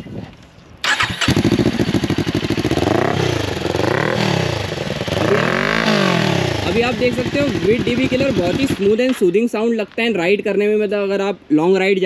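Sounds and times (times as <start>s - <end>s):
motorcycle engine revving: 0.8s - 9.1s.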